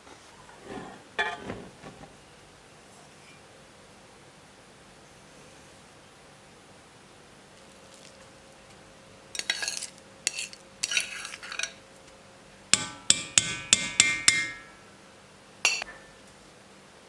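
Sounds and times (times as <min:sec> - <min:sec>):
hard objects knocking and scraping: 0:00.5 - 0:02.2
sharp ringing taps: 0:15.7 - 0:16.0.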